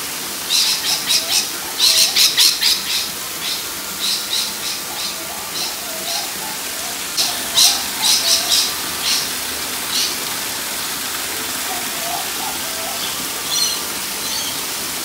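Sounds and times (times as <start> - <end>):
water running over rocks: 0.0 - 15.0.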